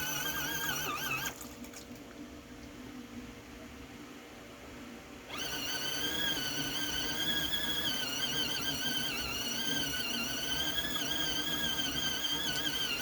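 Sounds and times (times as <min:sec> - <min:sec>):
small electric motor whining: 0:00.0 - 0:01.4, 0:05.3 - 0:13.0.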